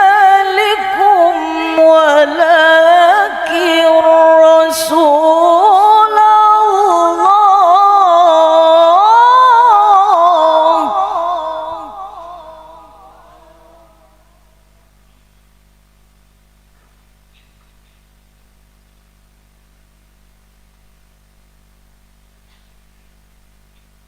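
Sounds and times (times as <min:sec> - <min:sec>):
woman reciting melodically: 0:00.0 - 0:14.4
echo tail: 0:10.6 - 0:14.8.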